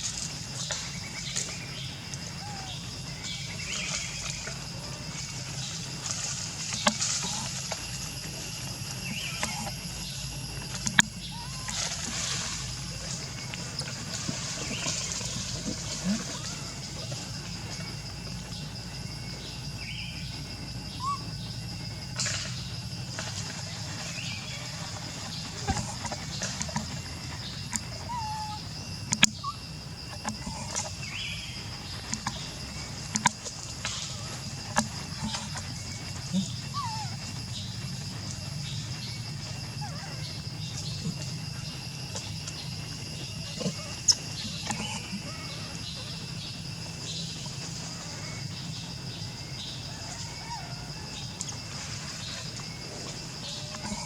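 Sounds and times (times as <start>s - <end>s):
faint pitched calls: 0.0s - 54.0s
high insect drone: 0.0s - 54.0s
low background hum: 0.0s - 54.0s.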